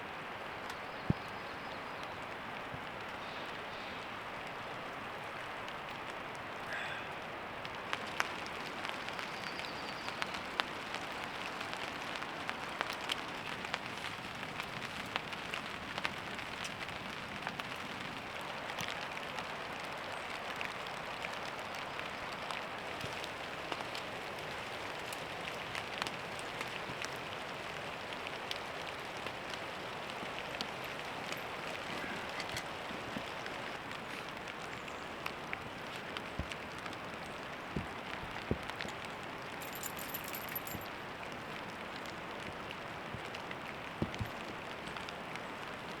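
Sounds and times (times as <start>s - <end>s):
heavy rain falling: 0.0s - 46.0s.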